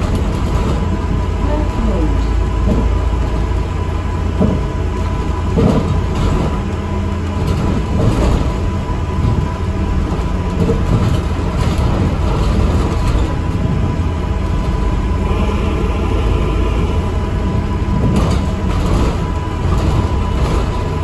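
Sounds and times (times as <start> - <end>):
bus engine and road rumble: 0.0 - 21.0
thin high whine: 15.0 - 18.8.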